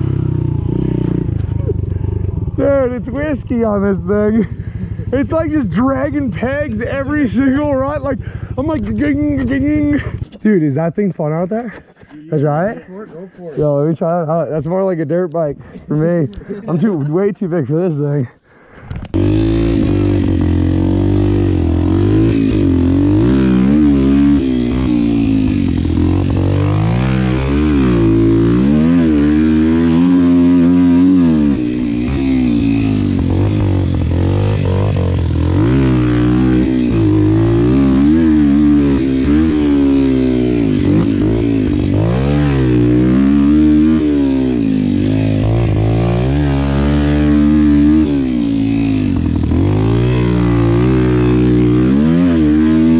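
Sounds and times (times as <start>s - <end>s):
small motorbike engine revving: 19.0s - 52.9s.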